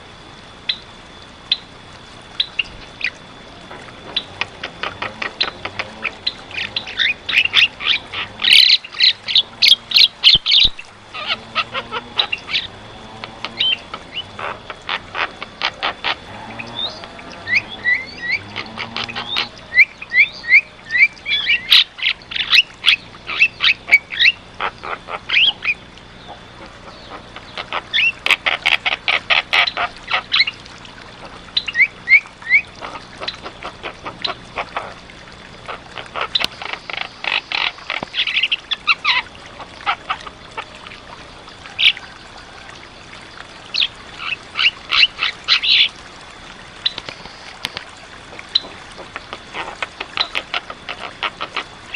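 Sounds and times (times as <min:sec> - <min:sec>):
myna calling: 0:03.0 - 0:30.6.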